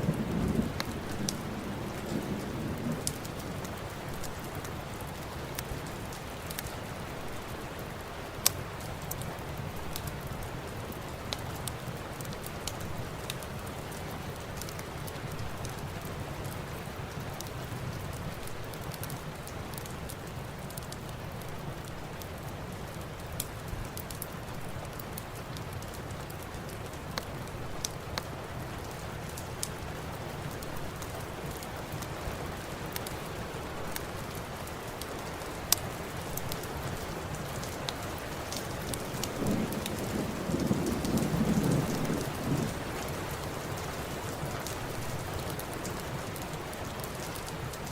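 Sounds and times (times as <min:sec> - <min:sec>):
thunder rumble: 0:00.0 - 0:04.5, 0:38.8 - 0:43.9
steady rain: 0:00.0 - 0:47.9.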